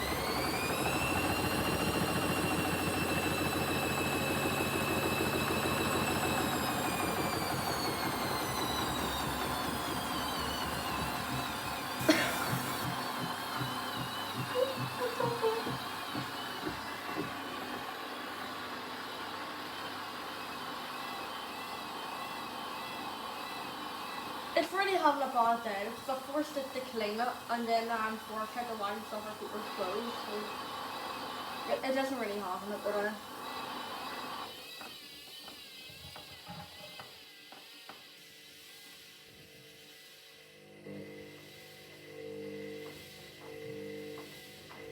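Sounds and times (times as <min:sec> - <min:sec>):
washing machine motor whine: 0:00.0 - 0:44.9
washing machine drum thuds: 0:10.4 - 0:17.6.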